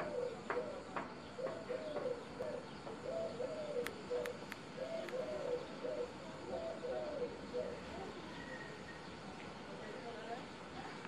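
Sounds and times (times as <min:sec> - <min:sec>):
bird calling: 0:00.0 - 0:09.2
sharp clicks: 0:03.8 - 0:05.2.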